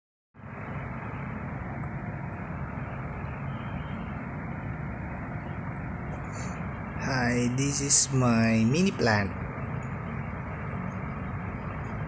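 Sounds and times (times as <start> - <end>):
background rumble and hiss: 6.2 - 9.4.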